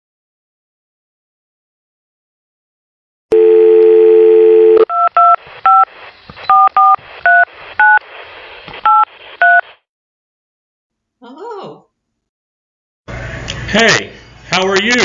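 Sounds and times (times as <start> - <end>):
telephone dial tone: 3.3 - 5.4.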